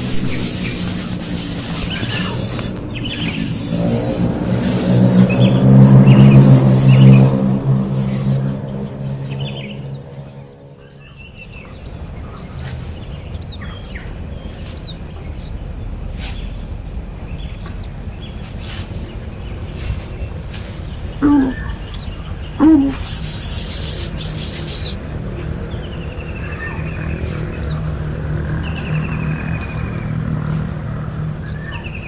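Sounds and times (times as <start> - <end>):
small birds chirping: 0.0 - 32.0
louder lower bird calls: 21.1 - 25.0.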